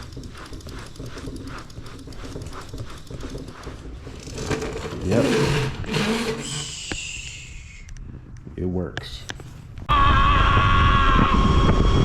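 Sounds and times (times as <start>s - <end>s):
brush scrubbing a tyre: 0.0s - 7.0s.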